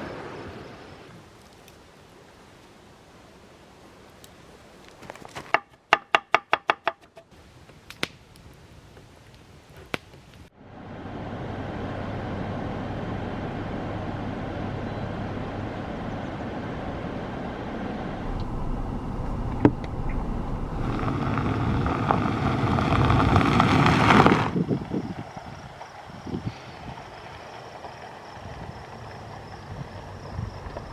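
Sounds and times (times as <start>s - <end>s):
vehicle engine and road noise: 10.5s - 30.9s.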